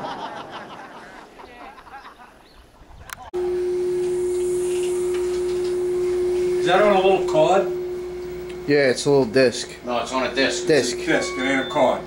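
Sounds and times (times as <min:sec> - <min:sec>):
loud steady hum: 0:03.4 - 0:12.0
click: 0:08.4 - 0:08.6.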